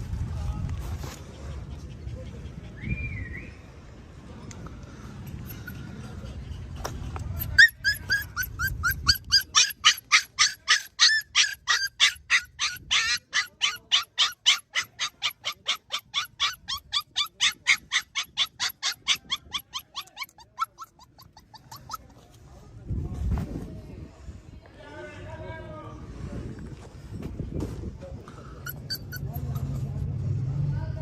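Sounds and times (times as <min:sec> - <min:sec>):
puppy yipping: 0:07.3 - 0:22.2, 0:28.6 - 0:29.9.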